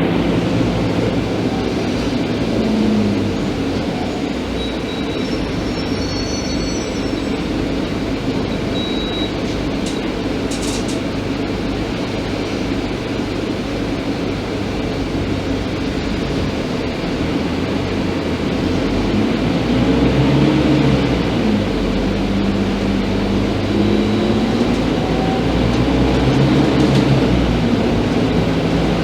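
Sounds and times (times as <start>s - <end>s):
bus engine and road noise: 0.0s - 29.0s
brief high squeaks: 4.6s - 7.5s.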